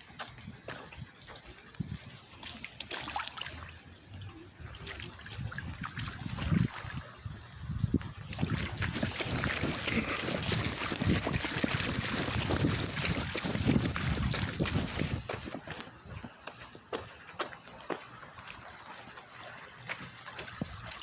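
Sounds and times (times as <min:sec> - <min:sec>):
rainwater running into sewer: 0:00.0 - 0:21.0.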